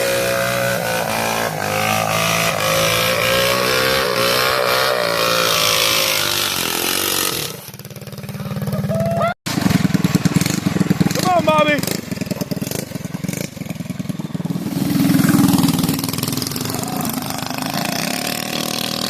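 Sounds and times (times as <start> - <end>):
mini bike engine revving: 0.0 - 19.0.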